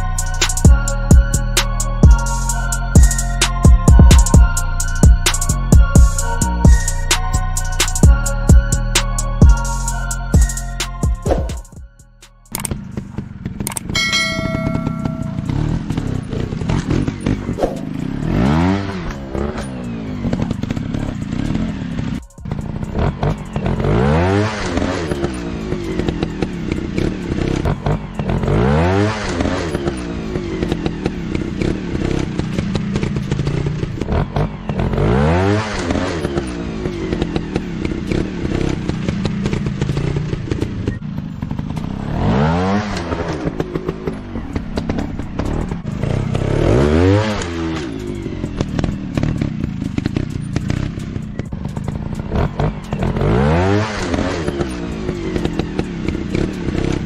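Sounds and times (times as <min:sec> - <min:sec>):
clatter: 0:12.5 - 0:57.0
dirt bike engines revving: 0:12.5 - 0:57.0.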